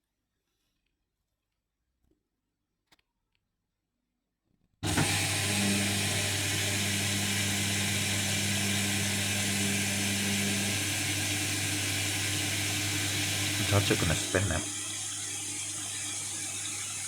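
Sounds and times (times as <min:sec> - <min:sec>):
washing machine water rushing: 0:04.8 - 0:17.0.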